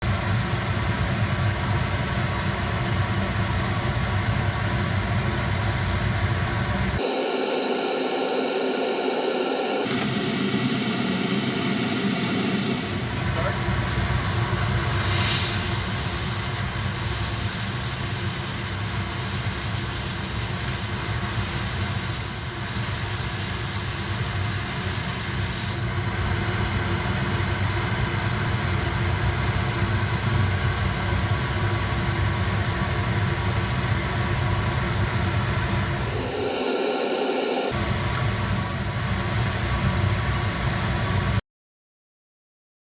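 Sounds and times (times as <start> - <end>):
low machine hum: 0.1 - 21.2
abrasive blast nozzle hissing: 13.8 - 26.0, 36.0 - 37.7.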